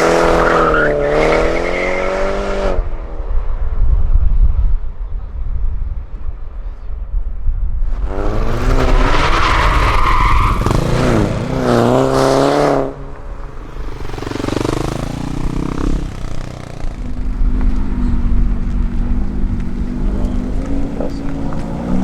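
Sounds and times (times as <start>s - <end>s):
car engine revving: 0.0s - 3.2s, 7.9s - 22.0s.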